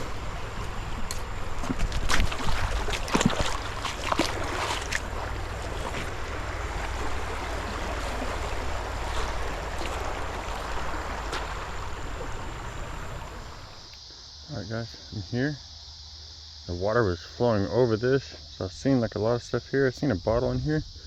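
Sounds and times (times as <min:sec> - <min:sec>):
wind rumble on microphone: 0:00.0 - 0:13.8
footsteps crunching through debris: 0:01.1 - 0:06.2.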